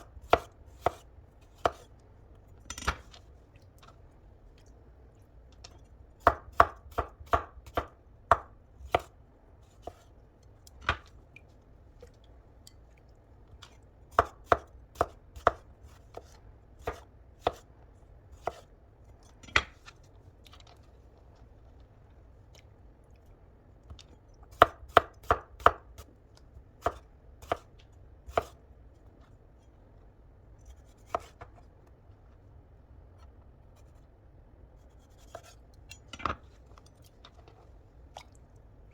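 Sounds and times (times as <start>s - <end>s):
knife chopping on cutting board: 0.0s - 1.9s, 6.2s - 9.1s, 9.8s - 10.1s, 14.1s - 17.6s, 18.4s - 18.7s, 24.5s - 26.0s, 26.8s - 27.7s, 28.3s - 28.6s, 31.1s - 31.5s.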